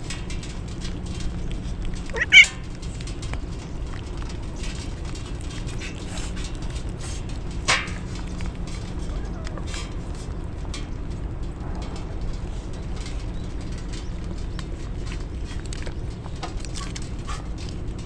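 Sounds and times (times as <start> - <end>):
cat meowing: 2.2 - 2.5.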